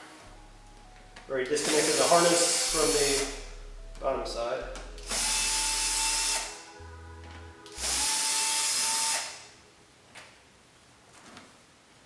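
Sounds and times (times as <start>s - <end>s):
power drill motor whine: 1.5s - 3.4s, 5.0s - 6.7s, 7.7s - 9.5s.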